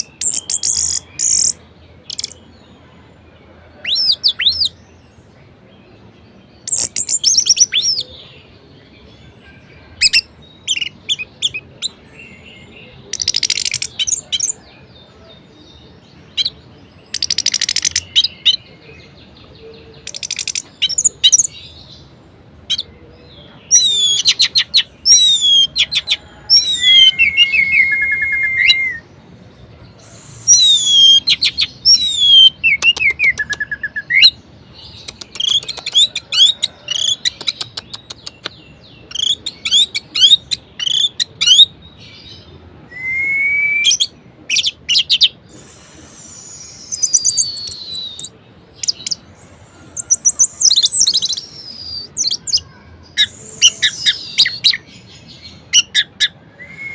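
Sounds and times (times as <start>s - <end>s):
thrush singing trills and whistles: 23.7s - 29.1s, 30.0s - 34.4s, 42.9s - 52.5s, 55.7s - 56.9s.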